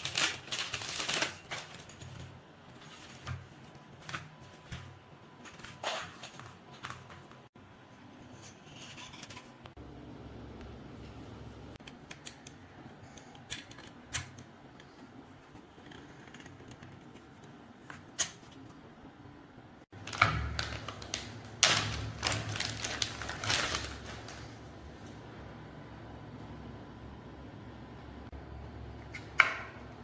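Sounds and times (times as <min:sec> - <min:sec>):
metal parts clattering and scraping: 0:00.0 - 0:07.3.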